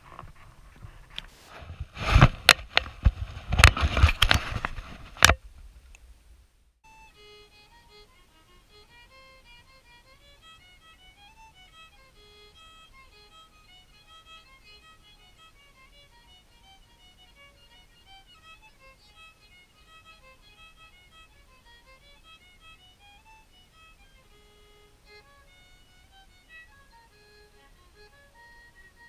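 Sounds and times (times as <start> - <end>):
solo fiddle playing a tune: 6.8 - 29.0.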